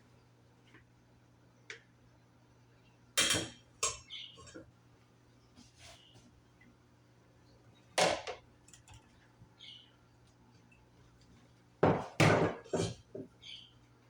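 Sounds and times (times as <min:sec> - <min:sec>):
kitchen clatter knocks: 0:11.8 - 0:13.3.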